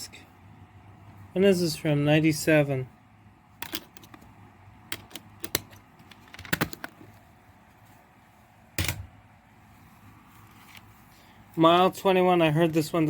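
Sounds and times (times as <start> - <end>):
plastic cd cases clicking: 4.9 - 7.1.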